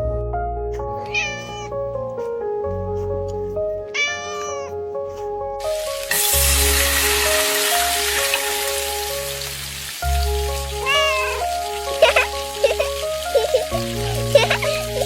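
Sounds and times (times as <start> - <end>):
background music: 0.0 - 15.0
cat meowing: 1.0 - 1.8, 3.8 - 4.8, 10.8 - 12.9
steady hiss: 5.6 - 15.0.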